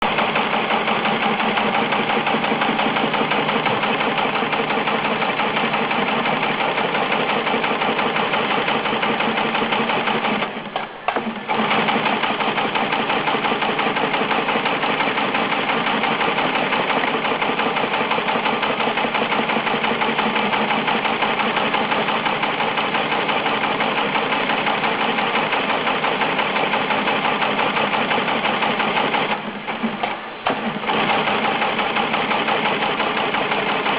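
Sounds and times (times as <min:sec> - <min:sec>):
machine mechanical clatter: 0:00.0 - 0:33.9.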